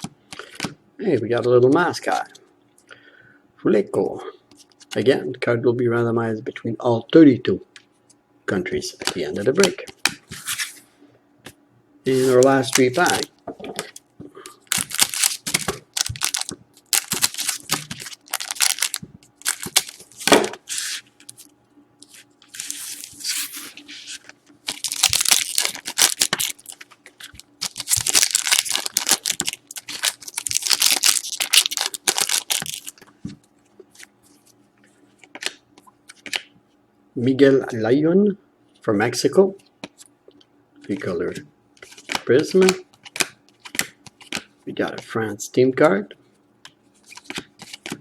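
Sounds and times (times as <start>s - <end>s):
card wrappers tearing and crinkling: 12.1s - 13.3s, 14.6s - 33.0s.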